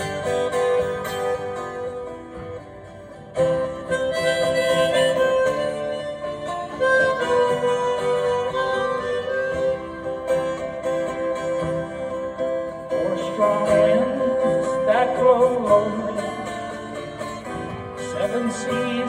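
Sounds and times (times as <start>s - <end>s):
harmonica playing melody: 0.0s - 15.2s
strummed acoustic guitar: 0.0s - 19.0s.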